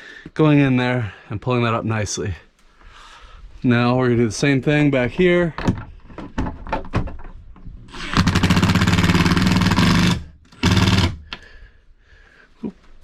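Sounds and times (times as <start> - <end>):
power drill driving screw: 7.9 - 11.4.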